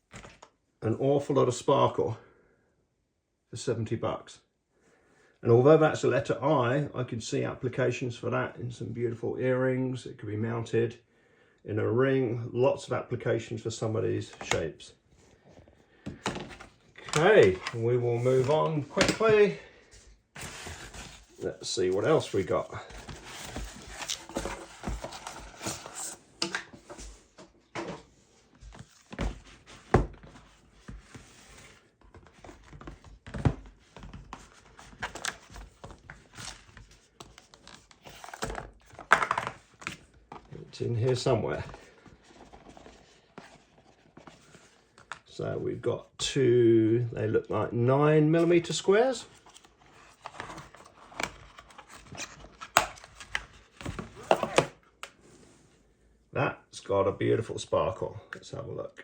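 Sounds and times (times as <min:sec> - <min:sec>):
packaging rustling: 0:20.4 - 0:26.2, 0:28.7 - 0:40.6
packaging knocks and rustles: 0:20.4 - 0:27.1.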